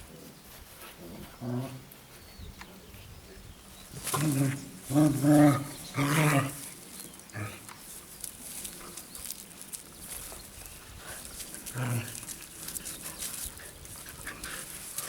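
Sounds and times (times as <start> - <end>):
faint rustling: 3.8 - 15.0
dogs growling: 3.9 - 7.8, 11.0 - 15.0
dog grunt: 4.1 - 6.6, 11.7 - 12.4.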